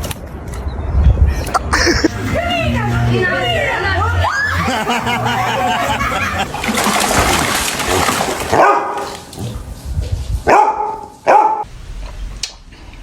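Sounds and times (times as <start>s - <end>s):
dog barking: 8.5s - 9.2s, 10.5s - 11.7s.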